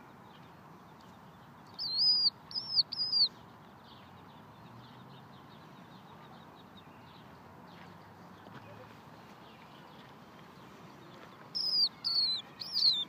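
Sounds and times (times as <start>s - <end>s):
faint bird chirping: 0.0s - 13.0s
bird giving loud high calls: 11.6s - 13.0s.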